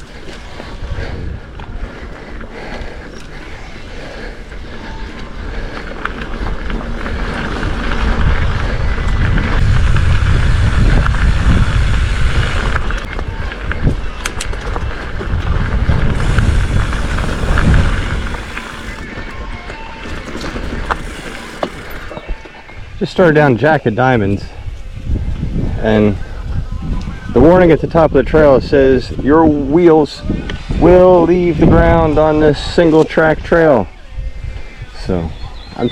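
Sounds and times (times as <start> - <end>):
bike rattling clicks: 0.0 - 22.8
tyres rolling over dirt trail: 0.0 - 35.9
wind rumbling on microphone: 0.0 - 35.9.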